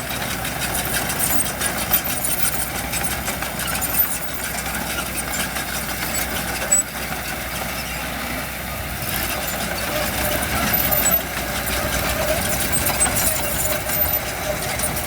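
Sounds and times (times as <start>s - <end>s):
diesel engine of heavy machinery: 0.0s - 15.0s.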